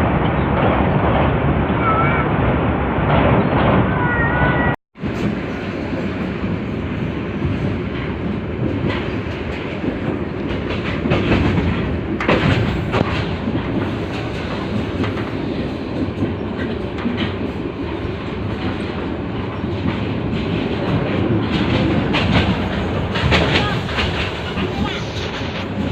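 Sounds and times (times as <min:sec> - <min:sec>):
train rumbling: 0:00.0 - 0:25.9
wheels clacking over rails: 0:07.4 - 0:25.9.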